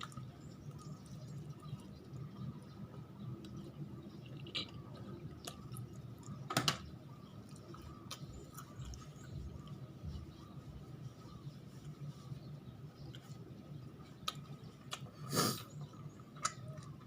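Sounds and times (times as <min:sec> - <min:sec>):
chewing food: 0:00.0 - 0:17.0.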